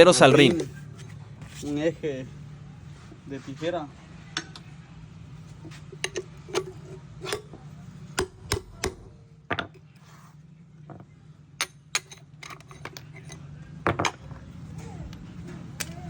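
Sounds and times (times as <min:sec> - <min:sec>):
steady low hum: 0:00.0 - 0:16.0
sharp metallic knocks: 0:08.2 - 0:09.8.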